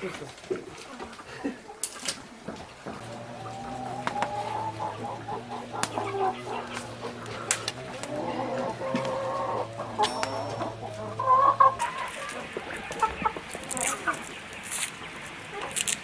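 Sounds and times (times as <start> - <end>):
chickens clucking: 0.0 - 16.0
steady low hum: 2.9 - 12.7
sharp clicks: 6.7 - 8.2.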